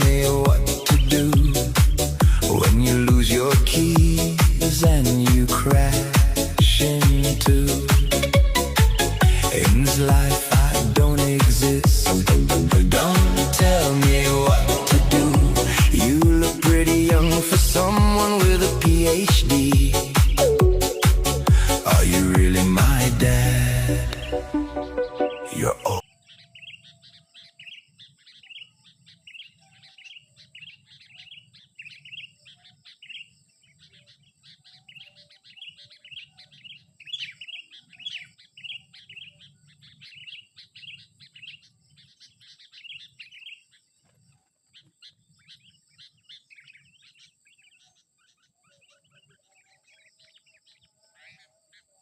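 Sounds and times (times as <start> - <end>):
bulbul chirping: 0.0 - 26.9.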